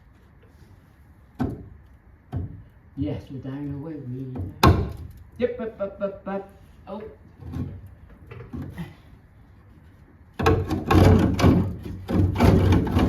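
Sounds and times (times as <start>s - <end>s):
metal clattering and scraping: 10.4s - 13.0s.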